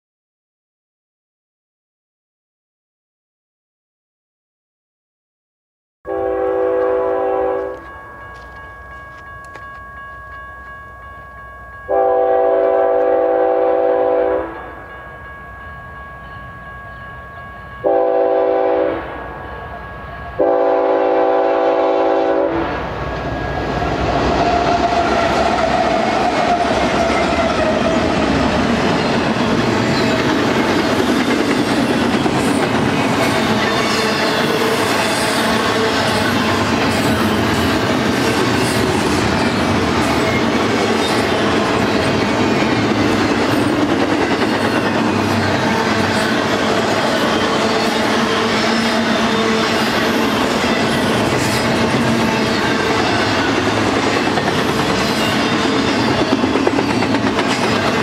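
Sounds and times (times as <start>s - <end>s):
locomotive air horn blasts: 6.1s - 7.8s, 11.9s - 14.6s, 17.8s - 19.2s, 20.4s - 22.8s
train wheels clattering on rails: 23.4s - 58.0s.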